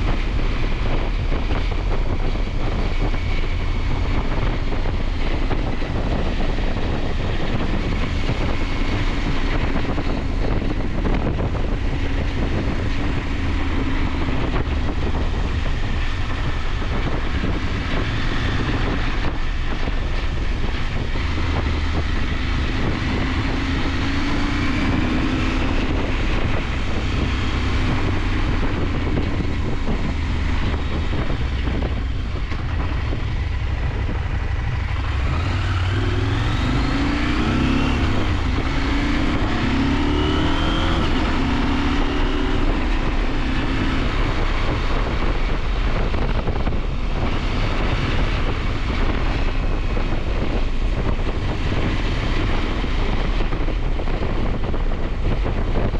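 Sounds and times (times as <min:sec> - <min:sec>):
motorcycle engine revving: 0:00.0 - 0:55.9
wind rushing: 0:00.0 - 0:55.9.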